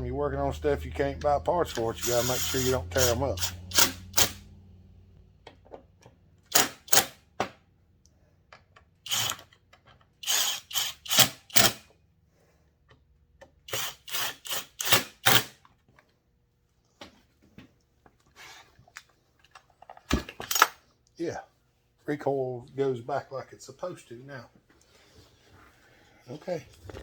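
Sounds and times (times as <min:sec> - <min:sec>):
chainsaw starter rope whirring: 0:01.8 - 0:04.4.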